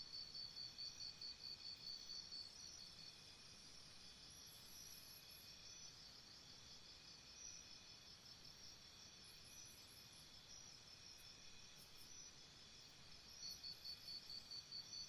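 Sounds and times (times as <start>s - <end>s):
insects chirping: 0.1s - 15.0s.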